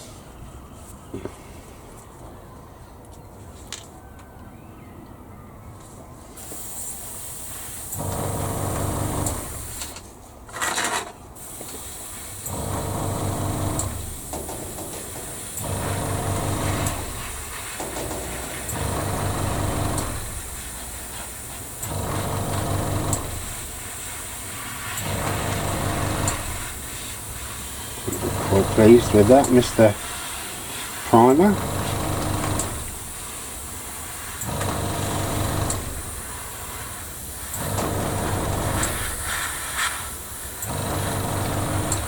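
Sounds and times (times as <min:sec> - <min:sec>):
airbrush spraying hiss: 0:06.4 - 0:10.0, 0:11.4 - 0:42.0
blast of air: 0:06.4 - 0:10.0, 0:11.4 - 0:42.0
motor hum: 0:07.9 - 0:10.0, 0:11.6 - 0:30.3, 0:31.0 - 0:42.0.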